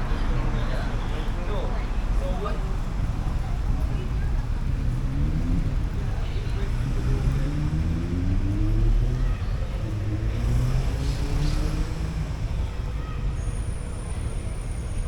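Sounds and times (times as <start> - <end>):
vehicle engine accelerating past: 4.1 - 13.1.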